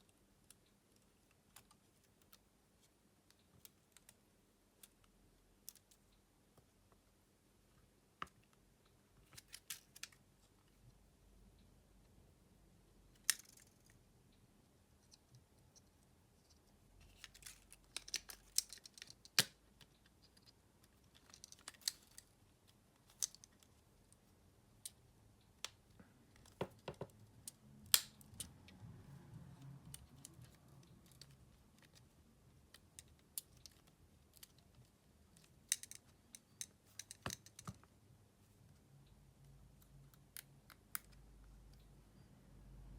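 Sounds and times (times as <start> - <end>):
small clicks and taps of tools: 32.7 - 37.9.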